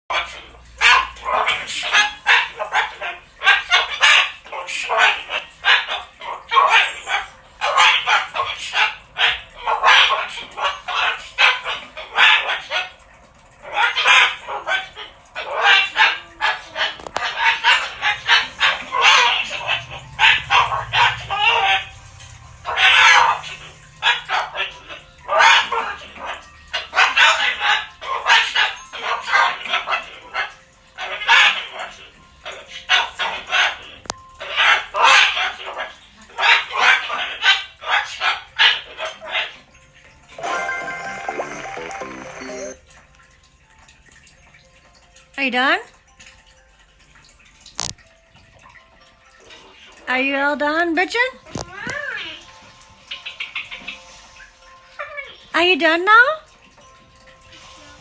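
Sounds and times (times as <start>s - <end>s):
pet bird screaming: 13.7s - 22.0s, 22.6s - 32.0s.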